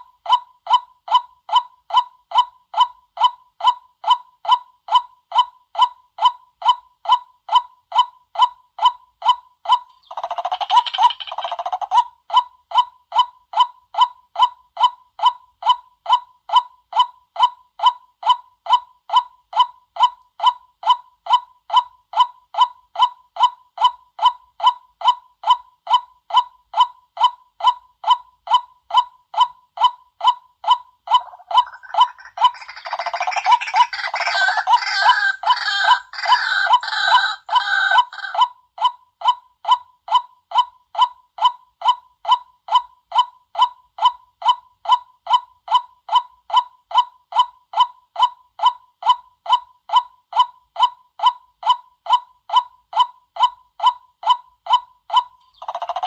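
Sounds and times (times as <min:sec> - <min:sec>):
waterhen calling: 0:31.1 - 0:38.4.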